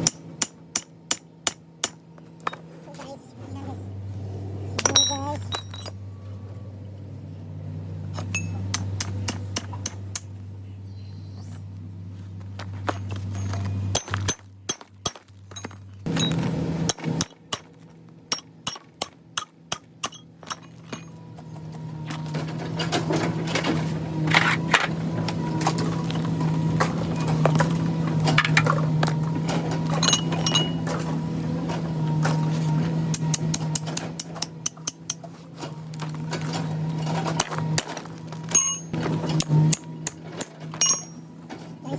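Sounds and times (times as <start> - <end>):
low machine hum: 0.0 - 41.9
metal pieces clinking: 4.8 - 6.0, 30.0 - 30.9.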